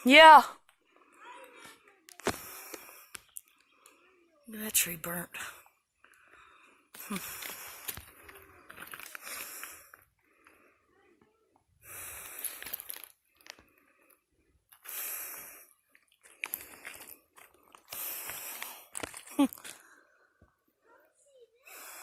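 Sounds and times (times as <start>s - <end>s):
person breathing hard: 17.8s - 19.1s.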